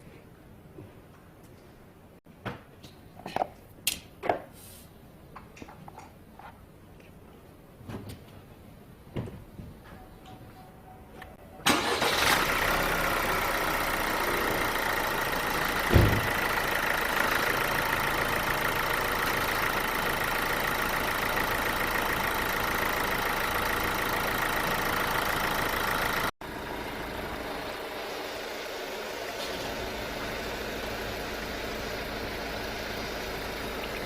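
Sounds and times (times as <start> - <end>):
diesel engine idling: 11.6 - 34.0
short low thump: 15.9 - 16.4.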